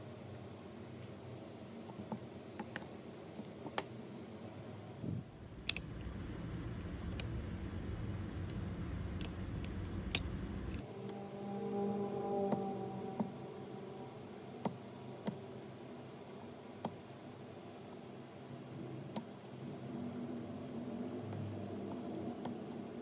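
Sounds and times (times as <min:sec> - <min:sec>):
low hum: 0:05.0 - 0:16.1.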